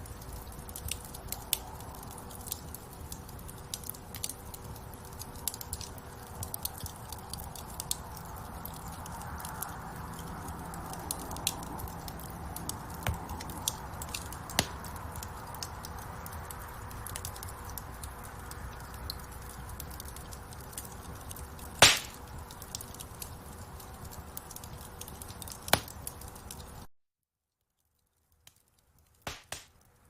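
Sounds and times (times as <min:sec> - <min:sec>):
wood fire crackling: 0:00.0 - 0:26.9, 0:27.7 - 0:30.0.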